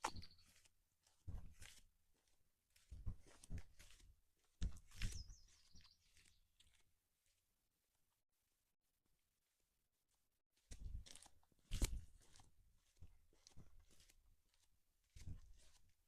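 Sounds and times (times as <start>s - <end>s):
bird chirp: 0.0s - 0.6s, 5.0s - 6.4s
footsteps on a trail: 0.0s - 7.4s, 10.7s - 16.0s.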